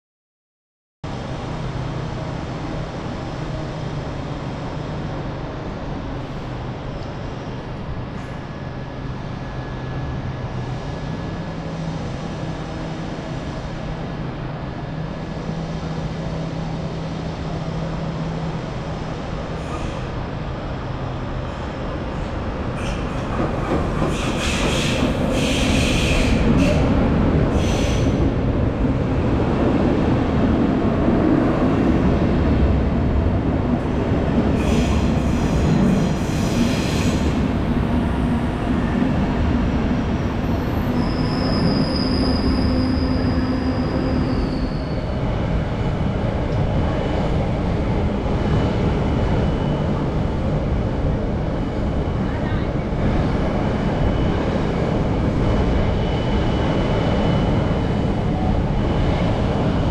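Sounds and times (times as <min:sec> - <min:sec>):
train wheels rumbling on rail: 0:01.1 - 0:59.9
wheels and brakes squealing: 0:40.5 - 0:45.2.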